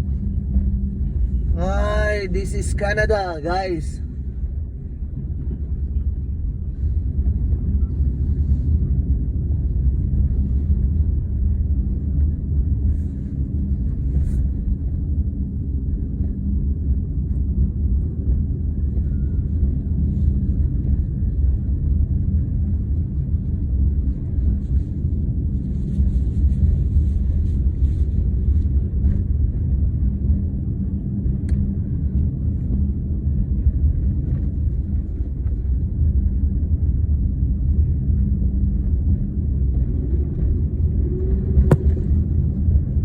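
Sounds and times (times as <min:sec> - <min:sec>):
faint hum: 0:00.0 - 0:43.0
vehicle engine rumble: 0:00.0 - 0:43.0.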